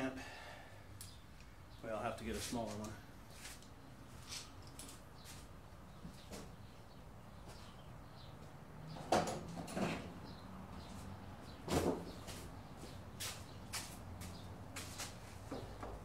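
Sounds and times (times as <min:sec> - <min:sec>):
wood and tools clicking and knocking: 0:08.9 - 0:10.1, 0:14.8 - 0:16.0.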